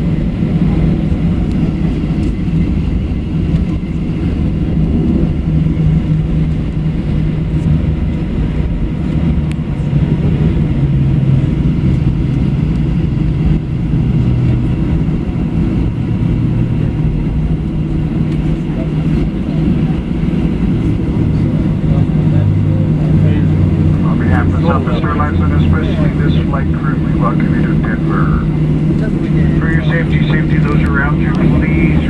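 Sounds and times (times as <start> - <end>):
aircraft engines rumbling: 0.0 - 32.0
steady low hum: 0.0 - 32.0.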